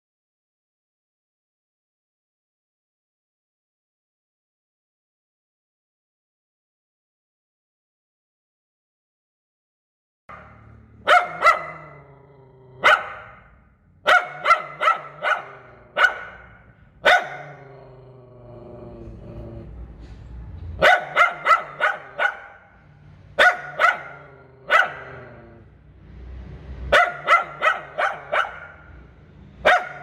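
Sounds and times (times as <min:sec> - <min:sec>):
dog barking: 0:10.3 - 0:18.0, 0:20.8 - 0:22.8, 0:23.4 - 0:25.6, 0:26.9 - 0:29.0, 0:29.6 - 0:30.0.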